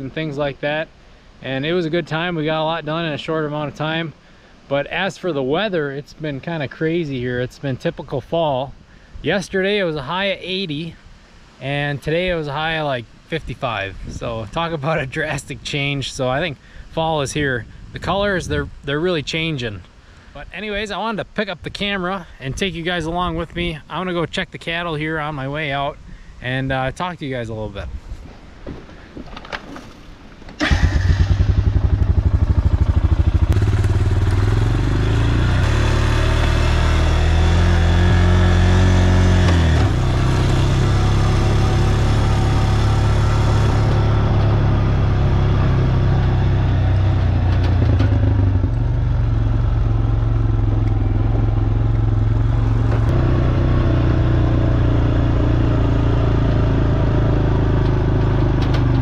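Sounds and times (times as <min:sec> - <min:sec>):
vehicle engine starting: 0:30.6 - 0:59.0
vehicle engine running loudly: 0:30.9 - 0:59.0.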